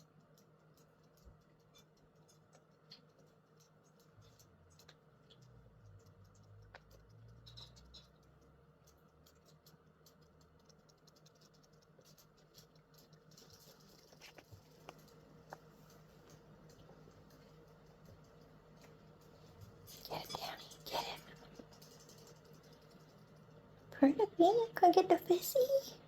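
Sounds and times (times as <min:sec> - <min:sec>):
sharp clicks: 0:00.0 - 0:19.3
light ticks and patters: 0:00.0 - 0:26.0.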